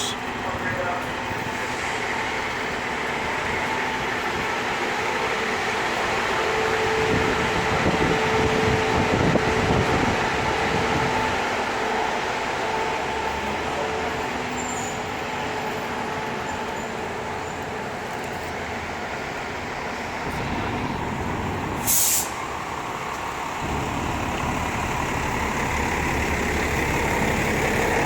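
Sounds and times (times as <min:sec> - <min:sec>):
air brakes hissing: 0:00.0 - 0:00.4, 0:21.7 - 0:22.6
heavy vehicle engines rumbling: 0:00.0 - 0:28.0.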